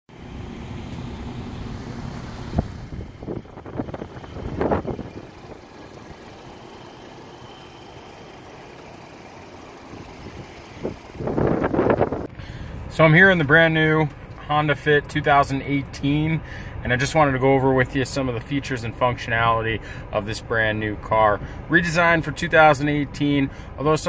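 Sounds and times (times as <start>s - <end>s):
car engine idling: 0.1s - 24.0s.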